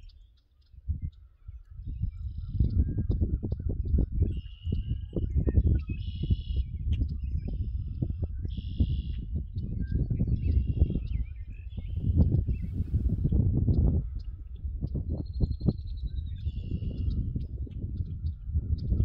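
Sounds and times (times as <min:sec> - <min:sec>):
birds singing: 0:00.0 - 0:19.0
low rumble: 0:11.8 - 0:19.0.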